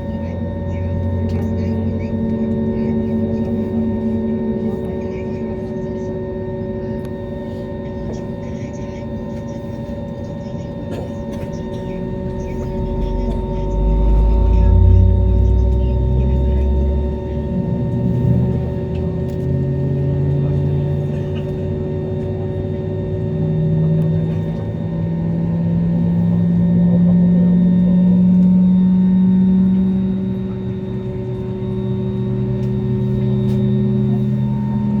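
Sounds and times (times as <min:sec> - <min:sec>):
jet engines passing overhead: 0:00.0 - 0:35.0.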